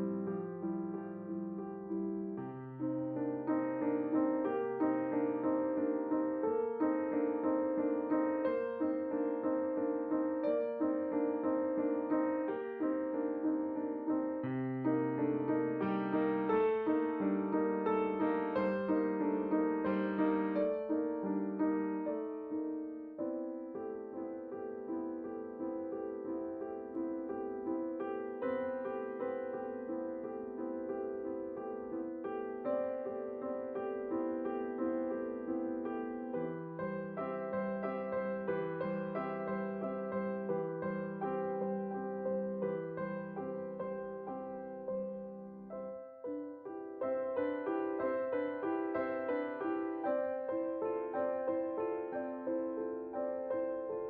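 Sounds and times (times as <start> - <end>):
piano notes and chords: 0.0 - 54.0.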